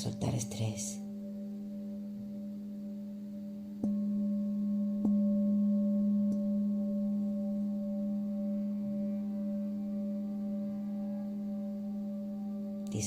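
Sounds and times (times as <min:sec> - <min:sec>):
singing bowl ringing: 0:00.0 - 0:13.0
singing bowl strikes: 0:01.0 - 0:13.0.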